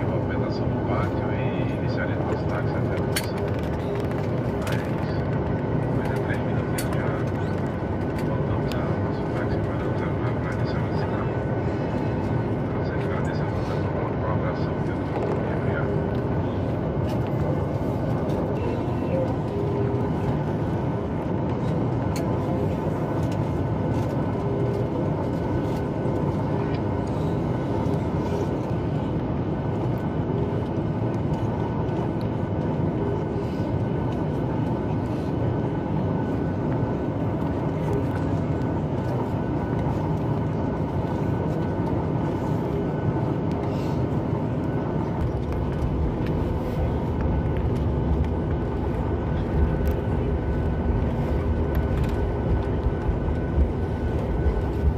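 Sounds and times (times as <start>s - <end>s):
aircraft cabin engine hum: 0.0s - 54.9s
deep rumble: 0.9s - 54.9s.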